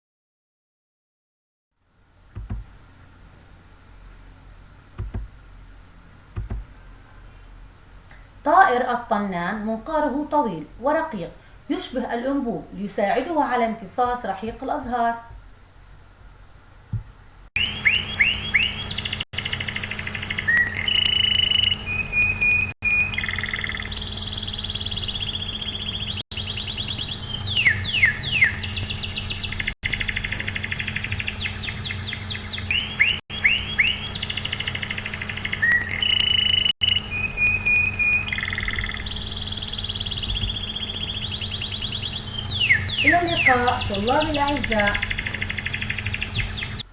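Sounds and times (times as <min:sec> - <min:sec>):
steady low hum: 0:01.9 - 0:17.5, 0:36.8 - 0:46.9
recorded birdsong whistles and trills: 0:17.6 - 0:46.9.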